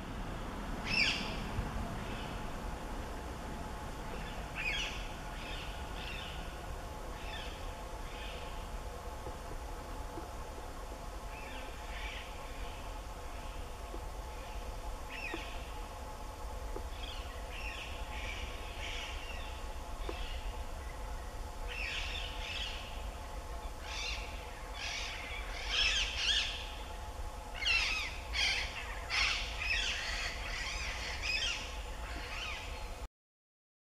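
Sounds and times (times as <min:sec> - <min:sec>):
steady low rumble: 0:00.0 - 0:33.1
birds chirping: 0:00.5 - 0:09.4, 0:16.6 - 0:33.0.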